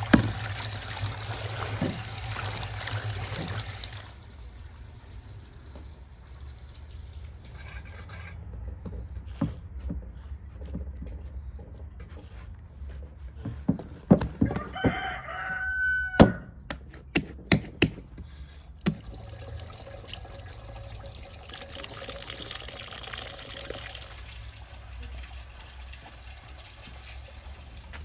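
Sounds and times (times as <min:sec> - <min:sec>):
sharp knocks and clatters: 0:13.4 - 0:15.1
rooster crowing: 0:14.4 - 0:16.6.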